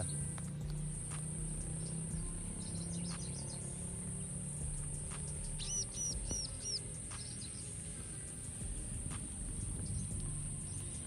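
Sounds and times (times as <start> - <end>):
bird calling: 0.0 - 8.1
steady high-pitched hiss: 0.0 - 11.0.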